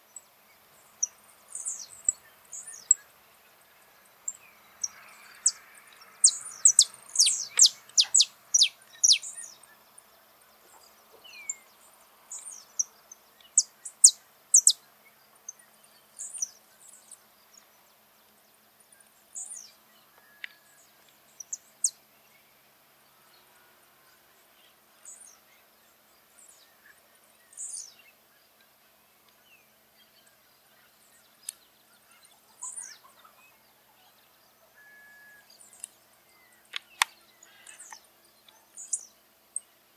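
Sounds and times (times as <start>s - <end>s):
finch singing high chirps: 6.2s - 9.8s, 12.3s - 14.8s.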